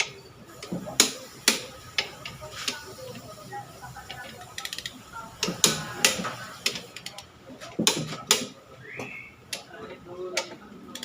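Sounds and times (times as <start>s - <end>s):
ratchet wrench clicking: 0.0s - 3.3s, 4.0s - 8.5s, 10.4s - 11.0s.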